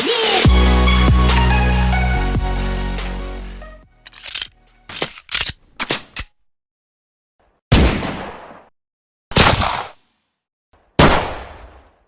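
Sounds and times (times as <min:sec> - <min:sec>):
gunshot cracks: 0:09.3 - 0:10.0, 0:11.0 - 0:12.0.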